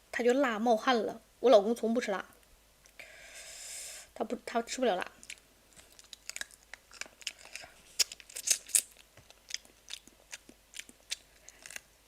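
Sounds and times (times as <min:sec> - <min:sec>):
person chewing crunchy food: 0:05.2 - 0:11.9.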